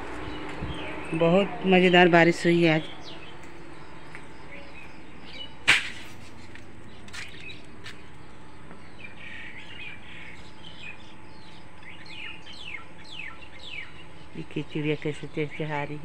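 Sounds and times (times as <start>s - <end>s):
birds chirping: 0.0s - 16.0s
sharp click: 5.7s - 6.1s.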